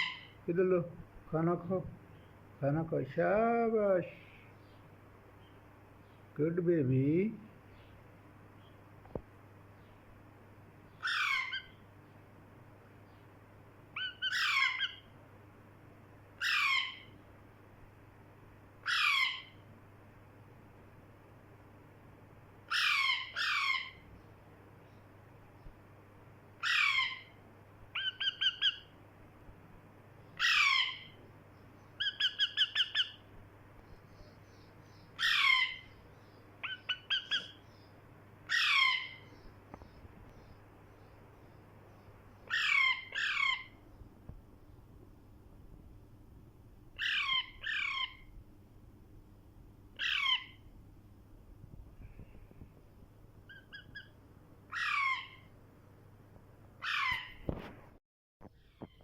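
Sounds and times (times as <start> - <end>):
parrot squawking: 0.0 - 0.4, 11.0 - 11.8, 14.0 - 15.1, 16.4 - 17.1, 18.8 - 19.6, 22.7 - 24.0, 26.6 - 27.4, 28.0 - 28.9, 30.4 - 31.2, 32.0 - 33.2, 35.2 - 36.0, 36.6 - 37.6, 38.5 - 39.2, 42.5 - 43.7, 47.0 - 48.2, 50.0 - 50.6, 53.5 - 54.1, 54.7 - 55.5, 56.8 - 57.4.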